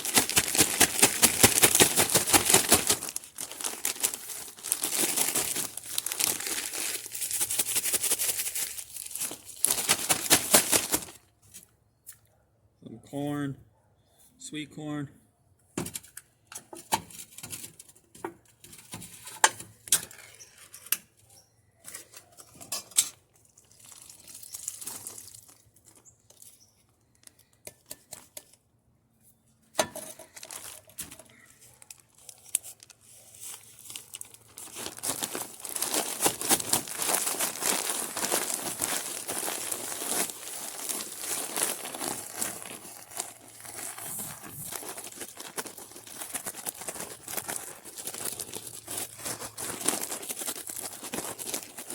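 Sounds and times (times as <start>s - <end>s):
dense rustling of mixing: 0.0s - 11.2s, 23.3s - 28.3s, 29.2s - 51.9s
packets crinkling and tearing: 0.0s - 11.4s, 23.4s - 28.5s, 29.9s - 51.9s.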